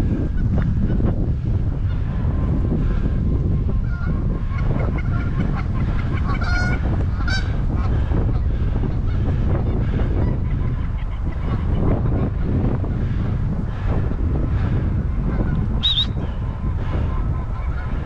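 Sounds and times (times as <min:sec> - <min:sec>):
wind buffeting microphone: 0:00.0 - 0:18.0
geese honking: 0:03.8 - 0:13.0, 0:15.0 - 0:18.0.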